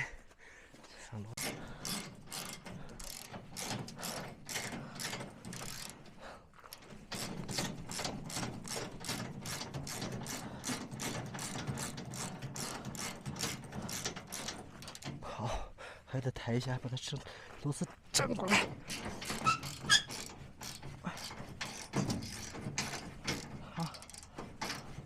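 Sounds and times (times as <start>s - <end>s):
ratchet wrench clicking: 1.4s - 15.2s, 18.8s - 25.0s.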